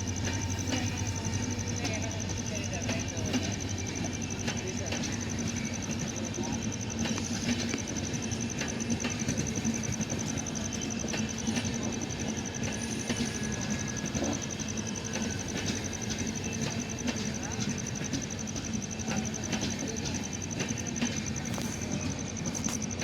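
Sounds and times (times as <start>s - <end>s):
train rumbling: 0.0s - 23.0s
wheels clicking on track: 0.0s - 23.0s.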